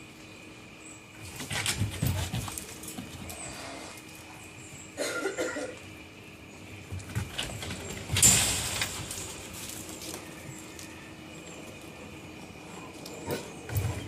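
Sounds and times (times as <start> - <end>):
dogs playing: 1.1 - 4.9, 6.7 - 14.0.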